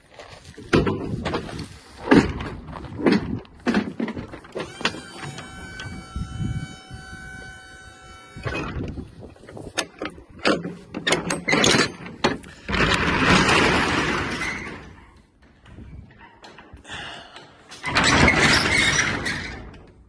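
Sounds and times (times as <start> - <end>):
loud metal rattling: 2.1 - 15.0
metal clicks and clanks: 8.4 - 15.2.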